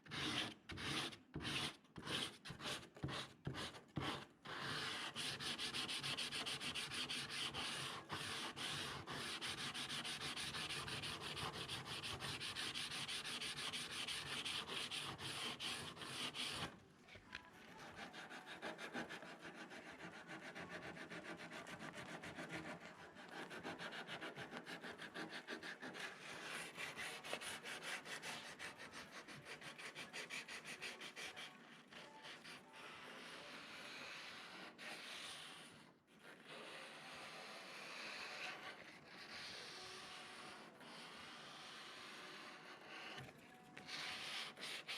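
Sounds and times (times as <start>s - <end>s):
sandpaper scratching: 0.1s - 16.7s.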